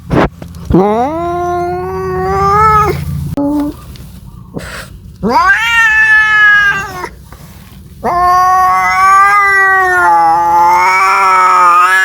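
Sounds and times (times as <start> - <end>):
cat yowling: 0.8 - 3.0, 5.2 - 7.2, 8.0 - 12.0.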